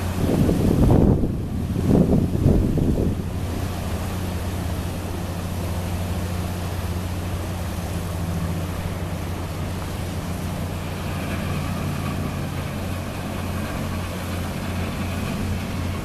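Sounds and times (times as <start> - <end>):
wind noise: 0.0 - 5.3
boat engines humming: 0.0 - 16.0
water wash: 0.0 - 16.0
wind buffeting microphone: 0.0 - 16.0.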